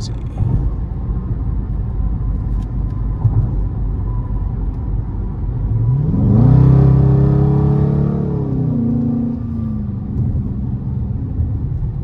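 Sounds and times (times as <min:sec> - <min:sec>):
car engine revving: 0:05.7 - 0:11.7.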